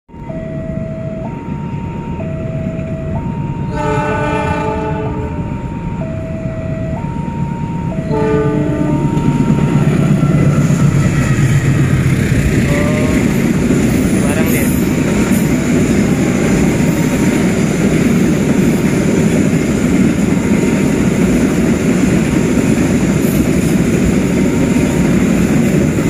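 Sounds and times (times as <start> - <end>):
level-crossing two-tone alarm: 0.1 - 26.0
train rumbling past: 0.1 - 26.0
locomotive horn blasts: 3.6 - 5.6, 8.0 - 9.4, 12.6 - 13.5.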